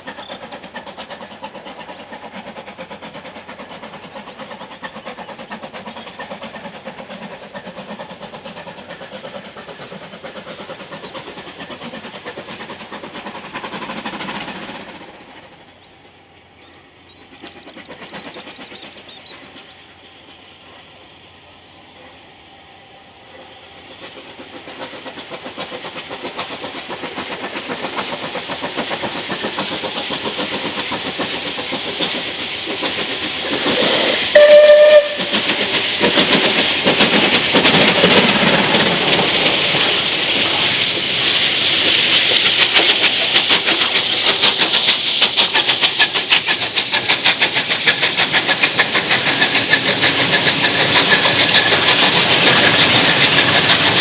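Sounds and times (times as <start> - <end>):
steam locomotive exhaust: 0.0 - 54.0
train whistle blast: 34.3 - 35.5.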